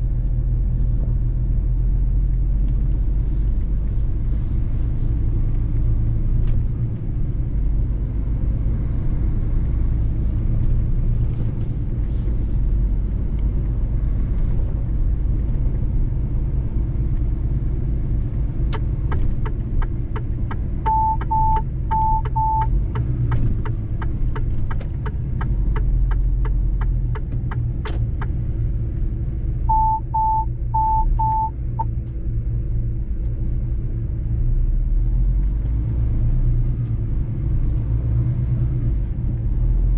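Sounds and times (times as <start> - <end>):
truck engine and road rumble: 0.0 - 39.9
even ticking: 19.1 - 28.4
short high beeps: 20.9 - 22.7, 29.7 - 31.5.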